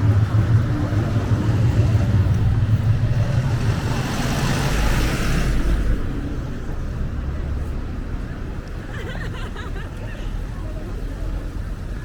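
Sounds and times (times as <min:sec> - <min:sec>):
vehicle passing with low rumble: 0:00.0 - 0:08.2.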